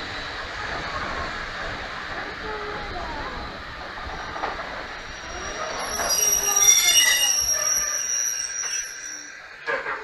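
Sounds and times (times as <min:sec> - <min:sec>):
train wheels squealing on rails: 0:03.4 - 0:10.0.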